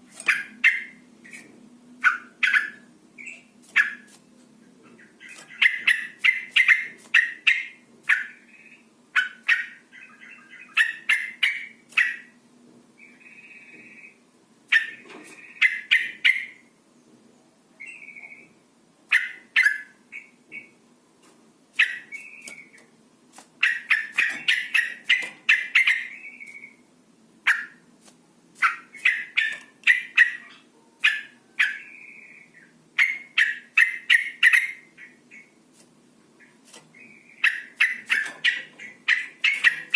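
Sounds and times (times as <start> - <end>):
bird chattering calls: 2.0 - 2.9, 5.0 - 12.3, 13.1 - 16.6, 21.8 - 22.8, 23.6 - 26.8, 28.6 - 35.5, 37.0 - 39.9.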